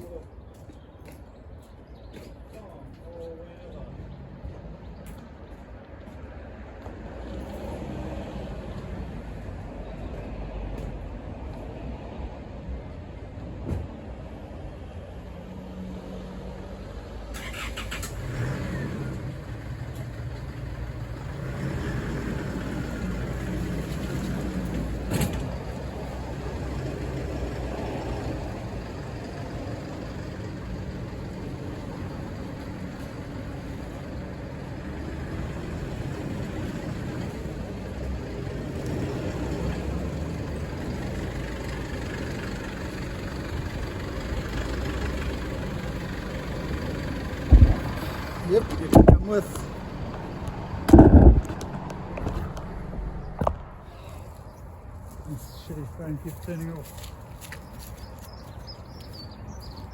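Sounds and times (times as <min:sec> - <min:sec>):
truck engine and road noise: 0:00.0 - 0:59.9
sharp knock: 0:47.5 - 0:48.0.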